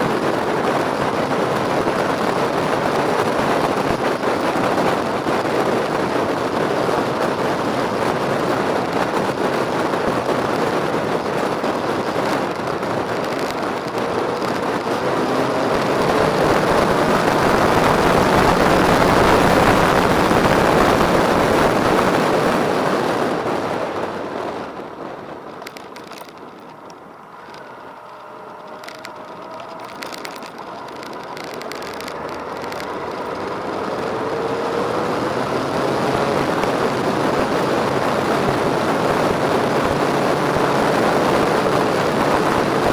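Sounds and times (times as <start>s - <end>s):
motorcycle engine running: 0.0s - 42.9s
wind rush: 0.0s - 42.9s.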